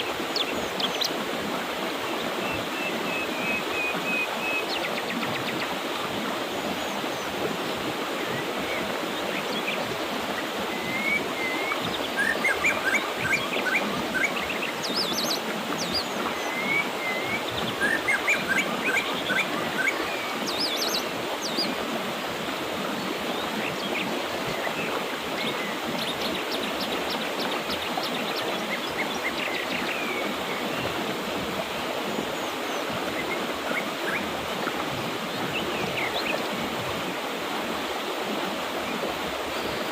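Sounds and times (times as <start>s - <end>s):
river rushing: 0.0s - 39.9s
small birds chirping and trilling: 8.3s - 21.8s.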